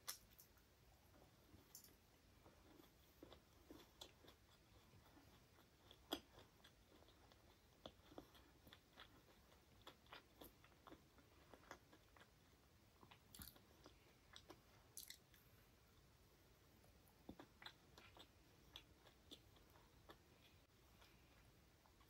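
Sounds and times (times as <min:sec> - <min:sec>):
person chewing with wet clicks: 0:01.6 - 0:15.4, 0:17.2 - 0:22.0.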